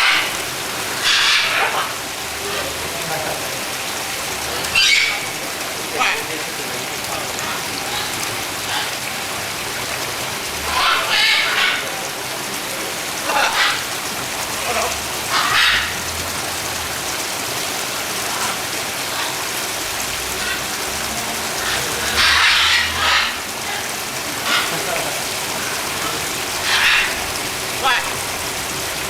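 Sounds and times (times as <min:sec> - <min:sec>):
heavy rain falling: 0:00.0 - 0:29.0
people's voices: 0:01.5 - 0:08.4, 0:10.8 - 0:15.1, 0:27.7 - 0:28.2.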